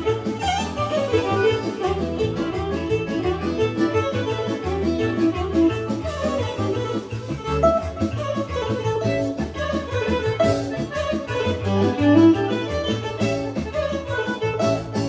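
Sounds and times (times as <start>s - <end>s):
fast folk dance music: 0.0s - 15.0s.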